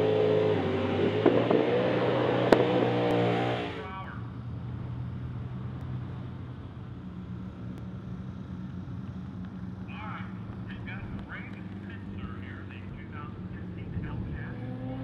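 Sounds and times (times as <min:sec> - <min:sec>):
car engine rumble: 0:00.0 - 0:15.0.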